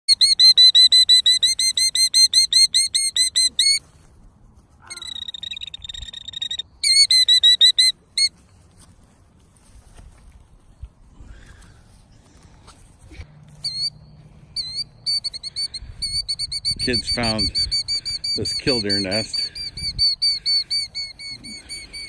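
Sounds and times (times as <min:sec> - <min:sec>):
bird shrill piping alarm calls: 0:00.1 - 0:03.8, 0:04.9 - 0:08.3, 0:13.6 - 0:22.0.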